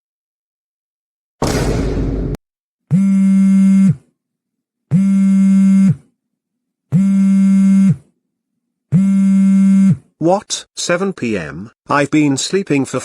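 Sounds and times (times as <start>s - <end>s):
burst of noise: 1.4s - 2.4s.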